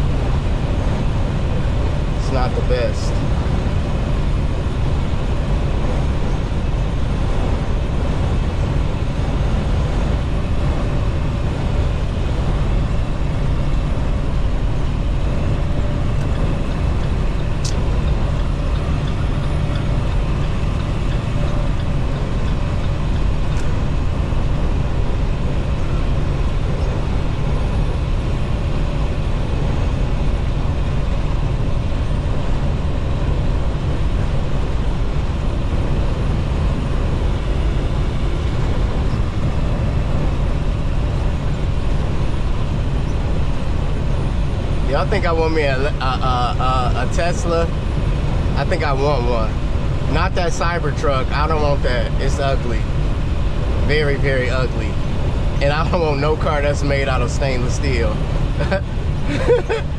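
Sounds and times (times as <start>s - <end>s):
truck engine and road rumble: 0.0s - 59.9s.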